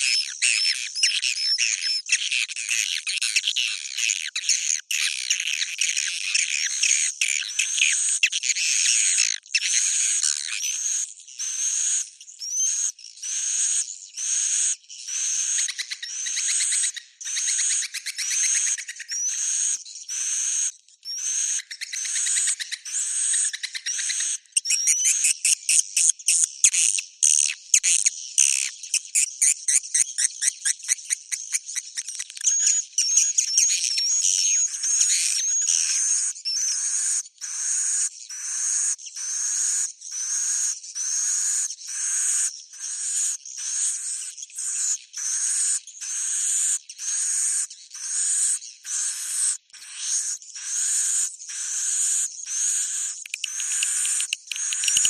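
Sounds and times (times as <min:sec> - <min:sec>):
high-pitched bird chirps: 0:47.0 - 0:55.0
rattling trill of clicks: 0:53.3 - 0:55.0.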